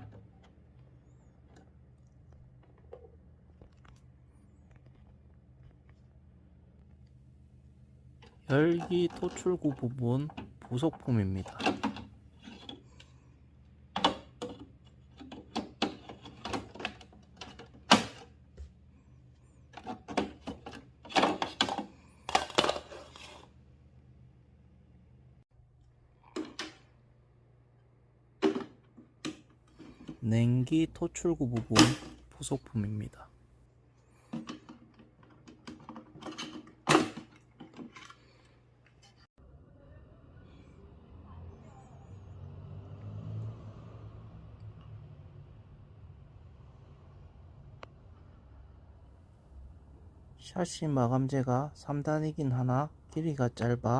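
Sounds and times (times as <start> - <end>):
plastic parts clicking and knocking: 8.2 - 13.1, 13.9 - 18.7, 19.7 - 23.5, 28.4 - 30.2, 34.2 - 39.0.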